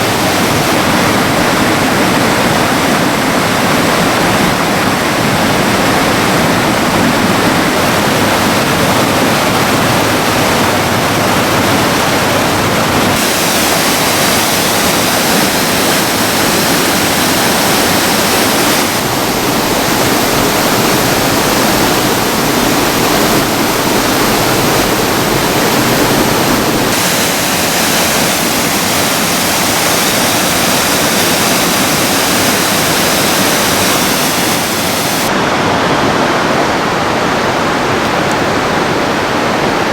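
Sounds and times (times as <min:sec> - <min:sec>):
rushing river water: 0:00.0 - 0:39.9.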